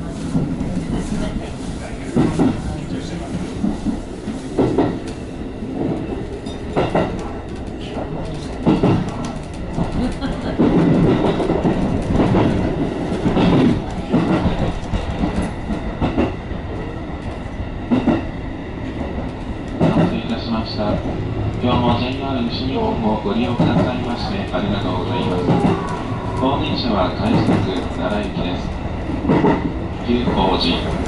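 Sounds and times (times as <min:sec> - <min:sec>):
wheel and rail rumble: 0:00.0 - 0:31.0.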